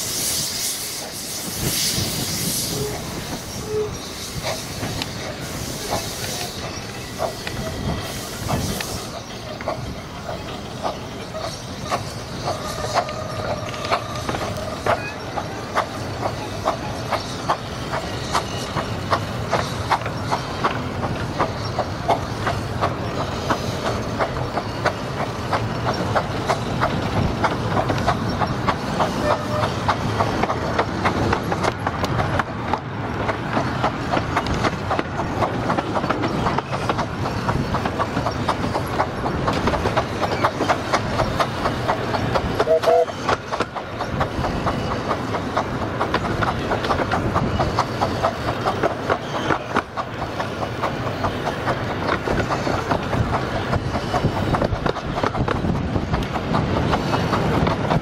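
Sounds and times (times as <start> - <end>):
train wheels clicking over rail joints: 0.0 - 58.0
wheel squeal: 0.4 - 9.6.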